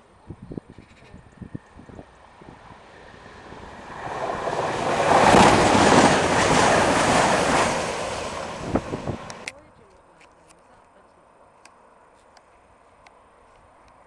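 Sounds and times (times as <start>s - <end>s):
passenger train rushing past: 1.2s - 9.5s.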